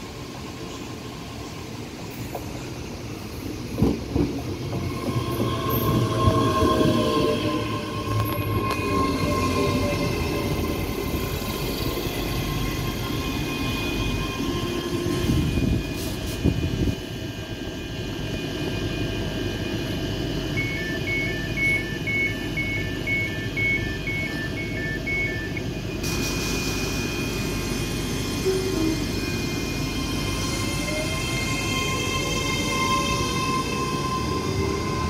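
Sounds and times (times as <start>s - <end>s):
train equipment hum: 0.0s - 35.0s
two-tone door alarm beeps: 20.5s - 25.8s.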